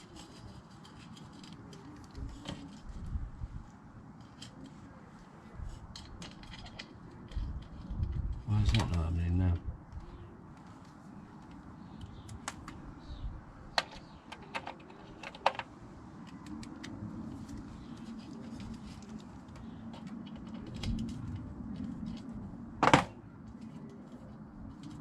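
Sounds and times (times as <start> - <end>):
metal parts and tools clicking: 5.9 - 8.0.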